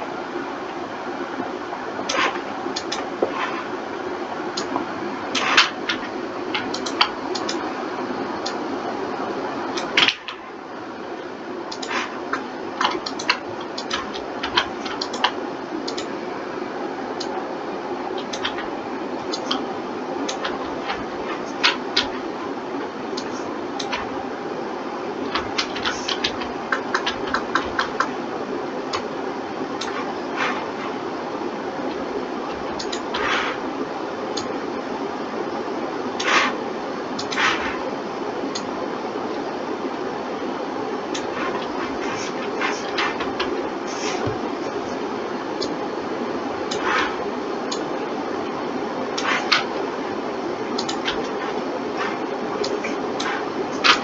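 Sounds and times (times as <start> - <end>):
fan-like hum: 0.0 - 54.0
mouse and keyboard clicks: 5.4 - 7.6, 11.7 - 16.1, 18.2 - 18.7, 20.3 - 22.2, 25.3 - 28.1, 32.5 - 33.6, 36.2 - 36.6, 37.2 - 37.8, 41.2 - 44.4, 50.8 - 54.0.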